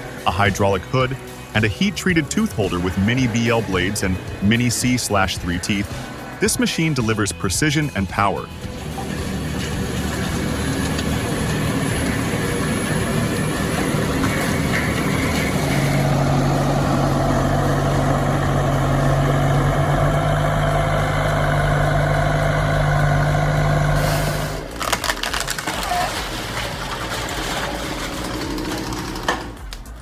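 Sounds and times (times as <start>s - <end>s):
heavy engine running: 0.0s - 30.0s
strong low hum: 8.5s - 24.8s.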